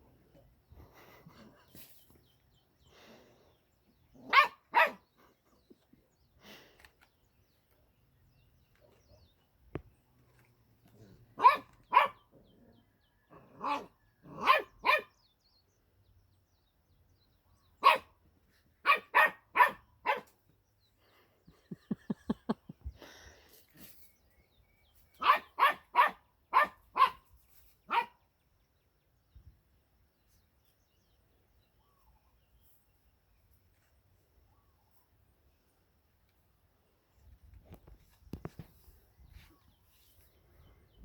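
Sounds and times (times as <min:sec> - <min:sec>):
puppy barking: 0:04.2 - 0:05.0, 0:11.4 - 0:12.2, 0:13.6 - 0:15.1, 0:17.8 - 0:18.1, 0:18.8 - 0:20.3, 0:25.2 - 0:27.2, 0:27.9 - 0:28.2.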